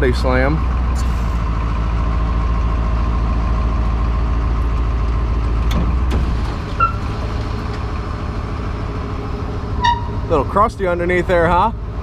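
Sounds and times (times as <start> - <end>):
truck engine under hydraulic load: 0.6 - 10.3.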